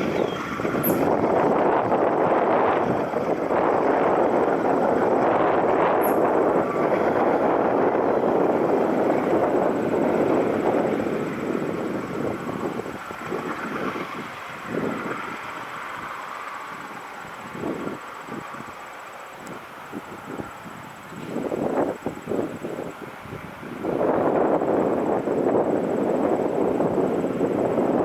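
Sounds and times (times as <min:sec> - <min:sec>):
wheel squeal: 0:00.0 - 0:01.4, 0:04.6 - 0:19.4
train wheels rumbling on rail: 0:00.0 - 0:28.0.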